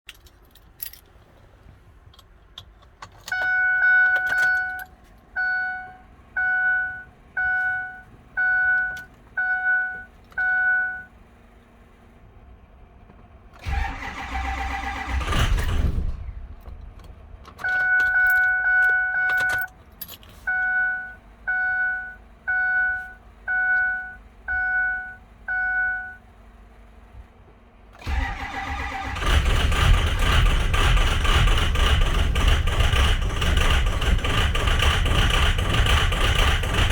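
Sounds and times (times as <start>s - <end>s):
dashboard chime dinging: 3.4s - 11.1s
starter cranking engine: 13.6s - 17.2s, 28.0s - 36.9s.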